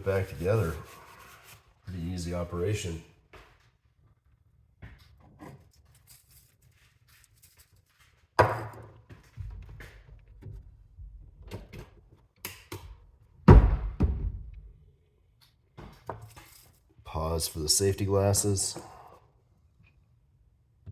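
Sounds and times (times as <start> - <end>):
heavy thunk: 13.5 - 14.5.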